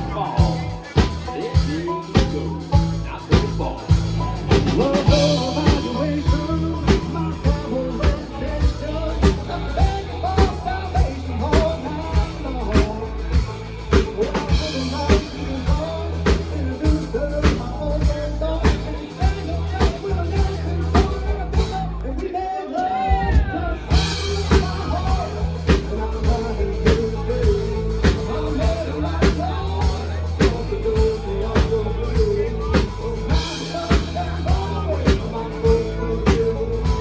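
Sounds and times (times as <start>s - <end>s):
wavering melodic lead line: 0.0s - 22.0s, 23.8s - 37.0s
bass line: 0.0s - 37.0s
drum kit beat: 0.0s - 37.0s.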